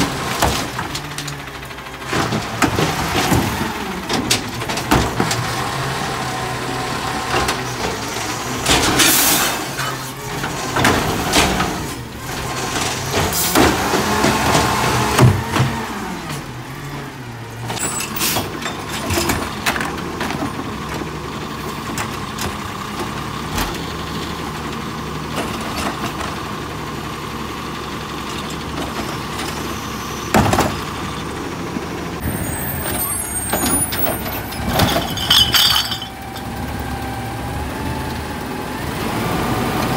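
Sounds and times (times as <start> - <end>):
carts clunking against truck: 0.0 - 6.0, 7.0 - 16.6, 17.5 - 26.6, 28.2 - 37.6
garbage truck diesel engines: 0.0 - 39.9
hydraulic arms lifting carts: 28.3 - 38.1.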